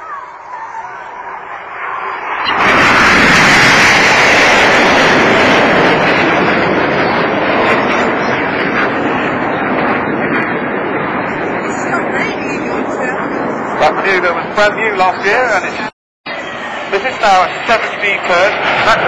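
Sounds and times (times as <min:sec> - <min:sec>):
jet engines roaring past: 0:00.0 - 0:19.0.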